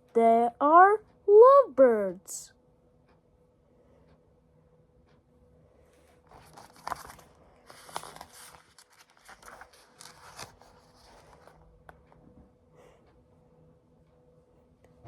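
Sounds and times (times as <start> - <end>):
paper pages rustling: 6.3 - 11.6.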